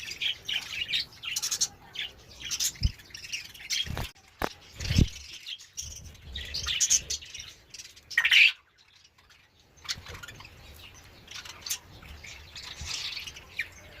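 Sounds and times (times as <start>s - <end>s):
parrot chirping and squawking: 6.6s - 13.8s.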